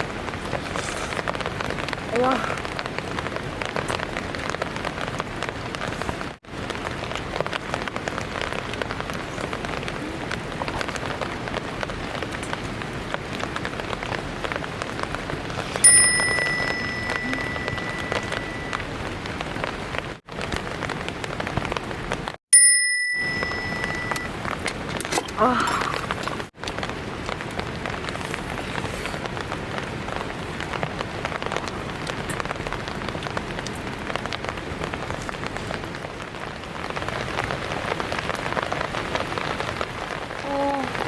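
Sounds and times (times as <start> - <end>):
heavy rain pattering: 0.0 - 22.4, 23.1 - 41.0
bell-like ding: 15.8 - 18.8, 22.6 - 24.3.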